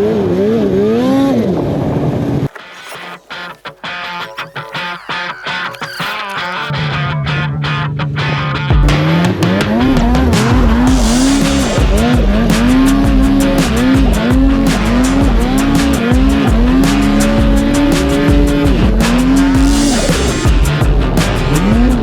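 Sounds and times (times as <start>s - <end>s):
background music with steady beat: 8.7s - 22.0s
snowmobile engine revving: 9.7s - 22.0s.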